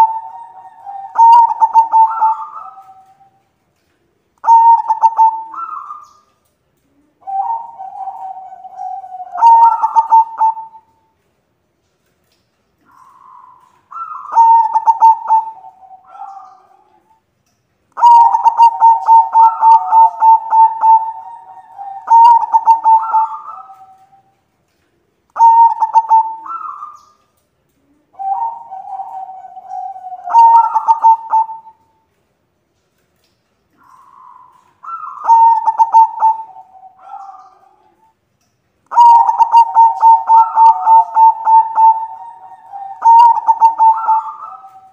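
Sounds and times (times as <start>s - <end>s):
doves cooing: 0.0s - 11.0s, 12.8s - 17.2s, 18.0s - 32.1s, 32.8s - 38.2s, 38.9s - 44.9s.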